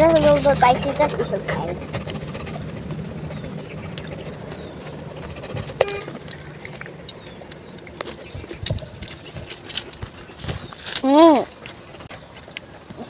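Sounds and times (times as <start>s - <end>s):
chewing and lip-smacking: 0.0s - 13.0s
fingers picking at food: 2.9s - 13.0s.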